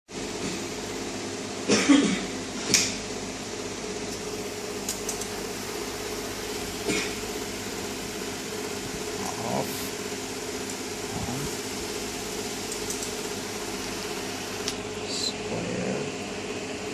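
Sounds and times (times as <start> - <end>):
steady machine hum: 0.1 - 16.9.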